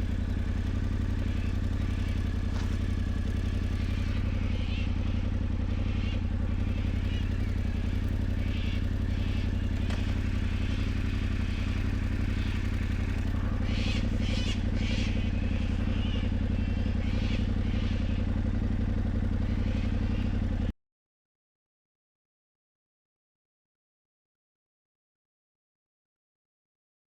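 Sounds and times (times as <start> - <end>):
motorcycle engine running: 0.0 - 20.7.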